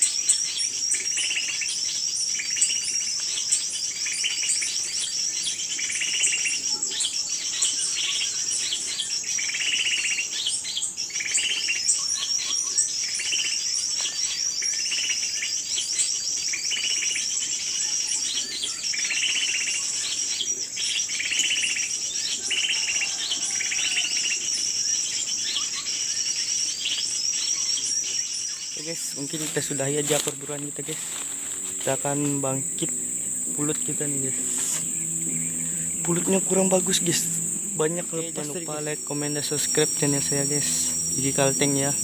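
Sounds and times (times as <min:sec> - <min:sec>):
high insect buzz: 0:22.5 - 0:25.2, 0:26.0 - 0:42.0.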